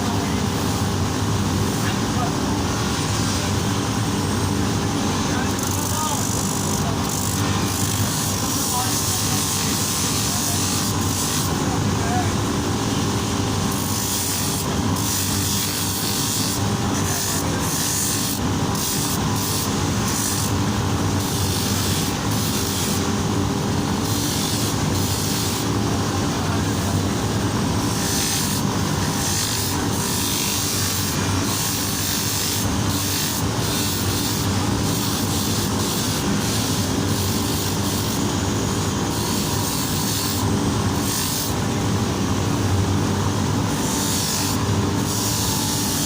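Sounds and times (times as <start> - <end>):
sanding metal: 7.4 - 11.6, 13.7 - 23.1, 24.0 - 25.8, 27.8 - 38.3, 39.0 - 41.6, 43.8 - 46.0.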